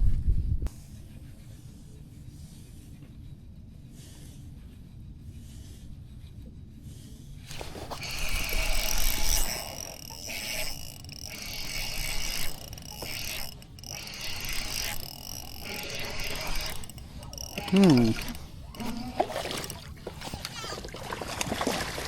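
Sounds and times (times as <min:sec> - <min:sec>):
fishing reel whirring: 0:07.5 - 0:20.4.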